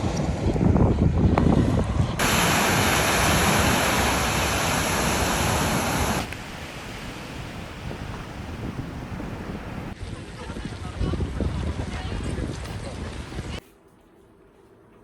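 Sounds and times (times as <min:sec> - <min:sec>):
wind buffeting microphone: 0:00.0 - 0:13.6
surf washing ashore: 0:02.2 - 0:10.6.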